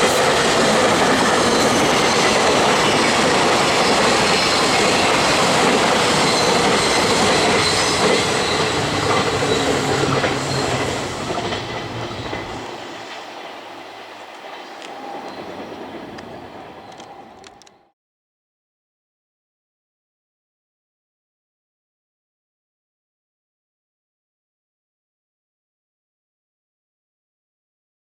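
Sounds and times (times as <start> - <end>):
freight train passing: 0.0 - 17.9.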